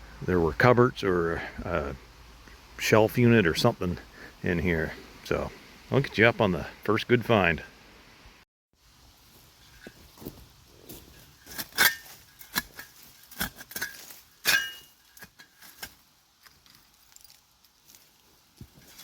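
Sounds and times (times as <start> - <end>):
shovel scraping through soil: 9.7 - 19.0.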